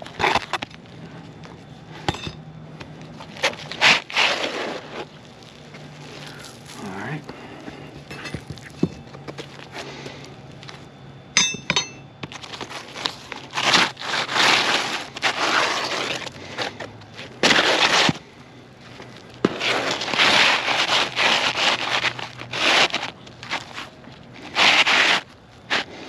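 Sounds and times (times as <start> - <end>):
roof shingles scraping and crackling: 0.0 - 1.5, 2.9 - 10.2, 12.2 - 26.0
short metallic clink: 11.4 - 12.1.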